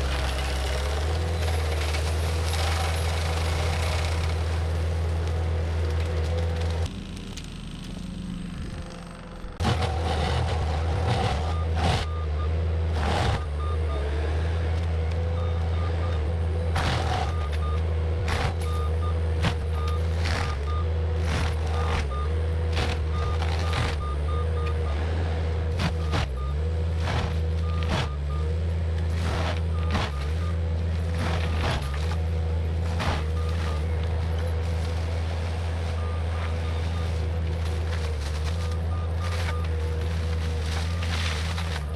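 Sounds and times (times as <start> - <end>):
diesel engine with whine: 0.0 - 41.9.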